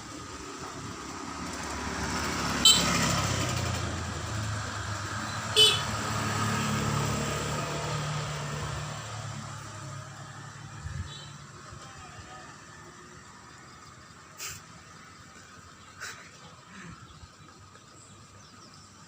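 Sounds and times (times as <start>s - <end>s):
motor vehicle passing: 0.0s - 17.0s.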